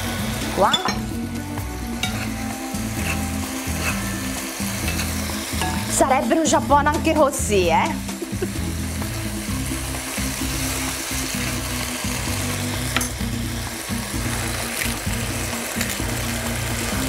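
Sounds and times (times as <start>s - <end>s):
food sizzling in a frying pan: 0.0s - 17.0s
spoon stirring in a pan: 2.0s - 5.9s.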